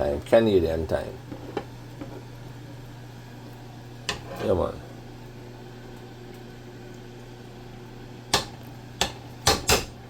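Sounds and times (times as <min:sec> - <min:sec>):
kitchenware clanking: 0:04.1 - 0:04.7, 0:08.4 - 0:10.0.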